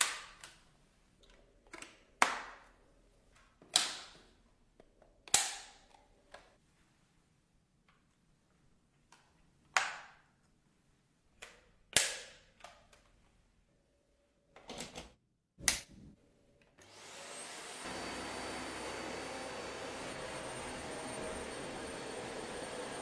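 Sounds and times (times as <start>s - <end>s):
vacuum motor with high whine: 16.8s - 23.0s.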